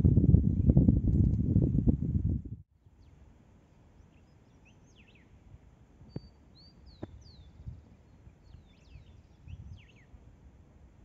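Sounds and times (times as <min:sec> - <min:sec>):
small birds chirping: 0:02.9 - 0:05.4, 0:06.0 - 0:10.2.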